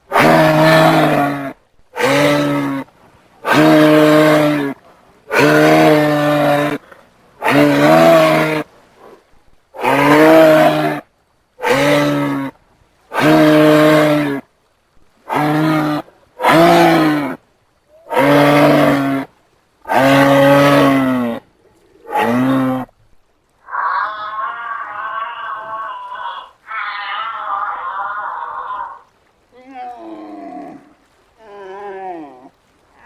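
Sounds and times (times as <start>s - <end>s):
giraffe low mooing call: 0.1s - 9.2s, 9.8s - 11.0s, 11.6s - 12.5s, 13.2s - 14.4s, 15.2s - 19.3s, 19.9s - 22.9s.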